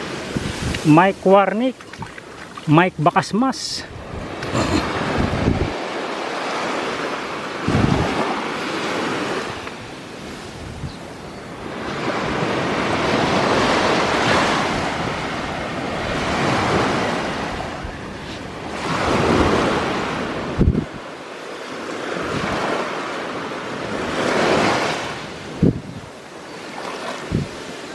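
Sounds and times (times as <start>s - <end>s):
waves breaking on beach: 0.0s - 27.9s
wind buffeting microphone: 0.3s - 0.9s, 3.8s - 5.9s, 7.2s - 21.1s, 22.2s - 22.8s, 25.4s - 26.2s, 27.2s - 27.7s.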